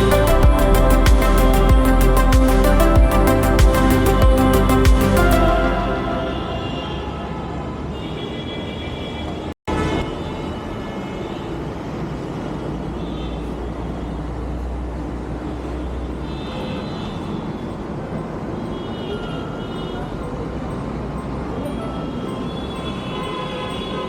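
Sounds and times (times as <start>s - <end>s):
short high tones: 0.0s - 7.4s.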